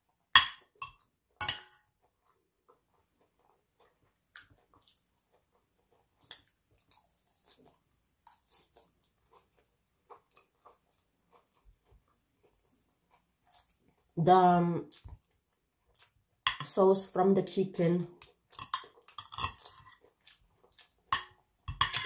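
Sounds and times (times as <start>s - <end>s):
chewing: 1.8s - 14.2s, 14.8s - 16.4s, 18.2s - 22.0s
knife and fork clattering on plate: 21.2s - 22.0s.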